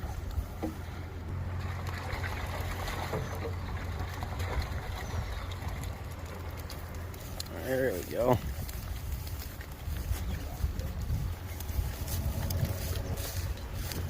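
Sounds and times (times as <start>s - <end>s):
water rushing and splashing: 0.0s - 14.0s
low rumble: 8.4s - 14.0s.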